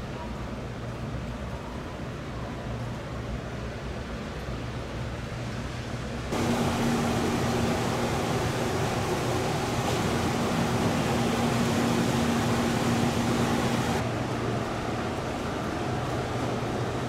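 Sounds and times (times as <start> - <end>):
train ventilation whirring: 2.8 - 17.0
low humming tone: 6.3 - 14.0.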